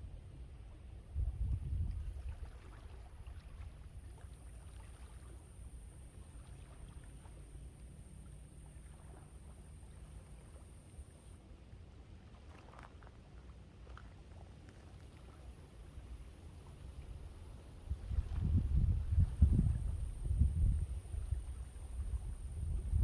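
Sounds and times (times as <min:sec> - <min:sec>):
faint wash of waves: 0:00.0 - 0:23.0
wind buffeting microphone: 0:01.0 - 0:02.6, 0:17.8 - 0:23.0.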